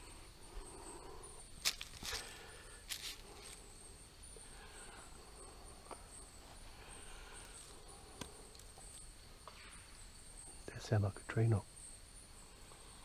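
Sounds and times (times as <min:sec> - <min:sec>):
insect chorus: 0:00.0 - 0:13.0
footsteps on leaf litter: 0:01.6 - 0:03.5
faint ticks: 0:07.4 - 0:09.6.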